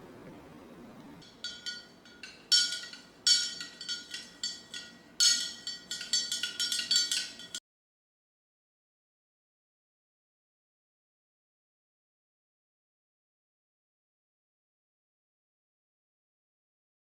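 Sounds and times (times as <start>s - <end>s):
sharp metallic clinks: 1.2s - 7.6s.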